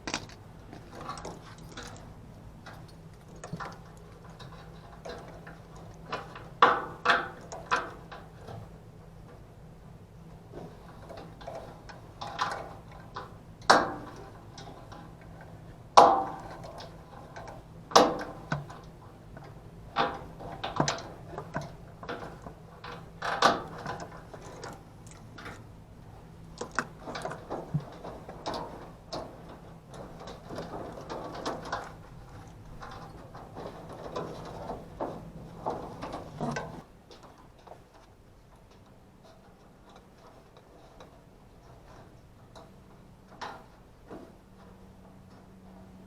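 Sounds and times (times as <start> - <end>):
knocks and clanks on metal: 0.0 - 2.1, 26.6 - 36.9
low steady hum: 0.0 - 46.0.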